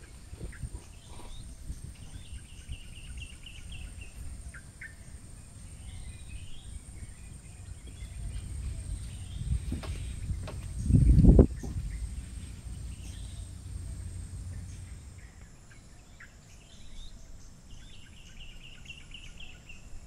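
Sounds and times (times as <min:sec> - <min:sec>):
low rumble: 0:00.0 - 0:15.7
high insect drone: 0:00.0 - 0:19.6
small birds chirping: 0:00.0 - 0:19.9.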